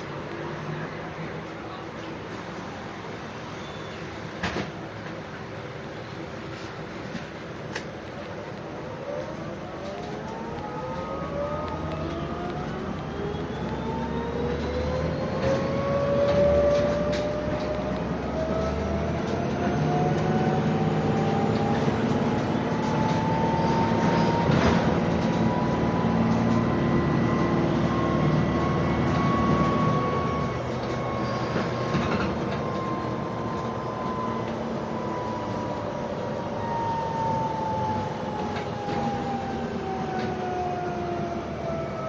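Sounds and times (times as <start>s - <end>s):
electric bus drive whining: 0.0s - 42.0s
low engine hum: 0.0s - 42.0s.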